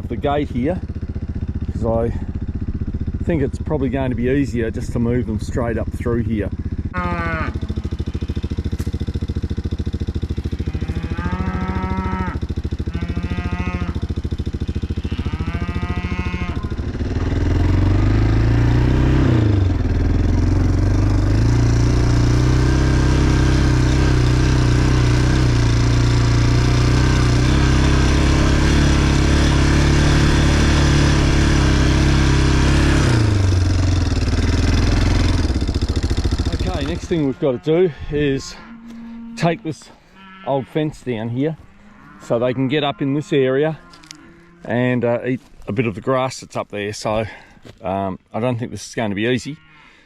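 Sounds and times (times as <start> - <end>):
vehicle engine running: 0.0 - 48.5
drawn-out calls: 6.7 - 9.2, 9.8 - 17.8, 33.5 - 44.8.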